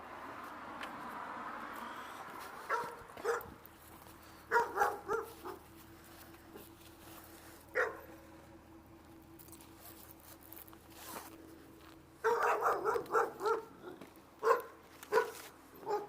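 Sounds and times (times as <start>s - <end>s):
dog barking: 2.6s - 3.6s, 4.5s - 5.7s, 7.7s - 8.2s, 12.2s - 16.0s.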